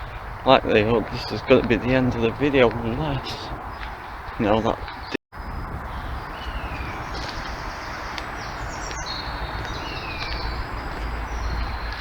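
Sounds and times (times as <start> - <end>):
birds whistling: 3.0 - 12.0
bird chirps: 3.1 - 12.0.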